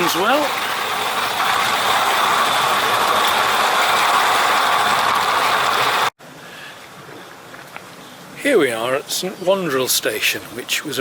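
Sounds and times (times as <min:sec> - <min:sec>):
steady mechanical rattle: 0:00.0 - 0:06.1.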